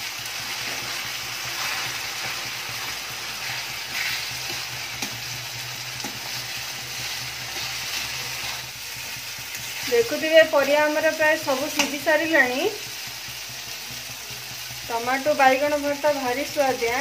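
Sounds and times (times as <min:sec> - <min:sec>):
vegetables sizzling in a pan: 0:00.0 - 0:17.0
metal spatula scraping pan: 0:00.5 - 0:10.8.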